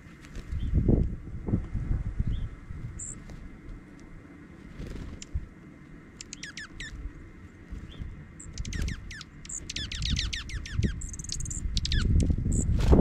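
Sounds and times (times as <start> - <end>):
songbirds chipping: 0.0 - 1.2, 2.1 - 13.0
low rumble: 0.0 - 5.6
buzzy bird note: 6.1 - 7.2, 7.9 - 12.7.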